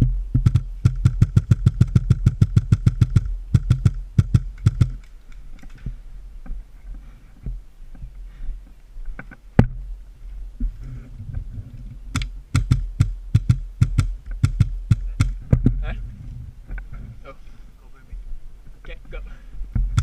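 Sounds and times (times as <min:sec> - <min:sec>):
airsoft gun firing bursts: 0:00.4 - 0:05.0, 0:12.1 - 0:15.4.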